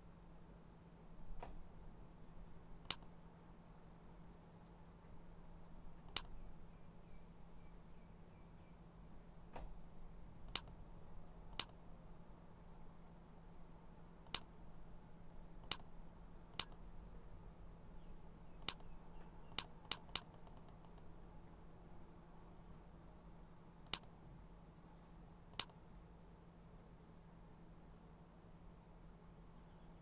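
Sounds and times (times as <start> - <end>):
faint steady hum: 0.0 - 30.0
computer mouse clicks: 2.8 - 3.2, 6.1 - 6.4, 10.5 - 10.8, 11.5 - 11.8, 15.6 - 15.9, 16.5 - 16.8, 18.6 - 21.2, 23.8 - 24.2, 25.5 - 25.8.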